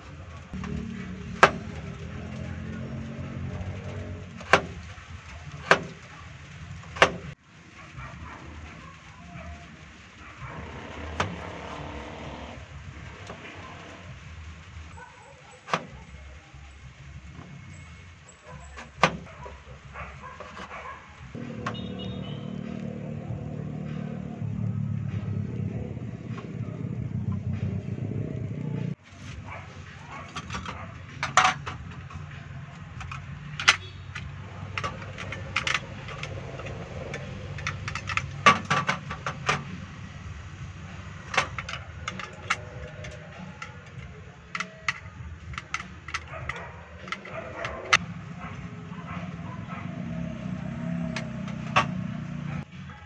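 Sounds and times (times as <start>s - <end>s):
sharp clicks and knocks: 0.0s - 7.4s, 10.5s - 14.2s, 18.6s - 19.5s, 30.1s - 39.9s, 41.2s - 48.1s, 50.8s - 52.3s
vehicle engine running: 0.0s - 15.0s, 15.6s - 52.8s.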